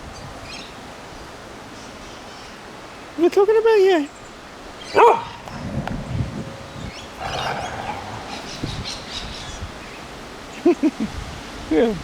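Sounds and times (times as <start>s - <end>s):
wind on microphone: 5.0s - 12.0s
small birds chirping: 6.5s - 10.7s.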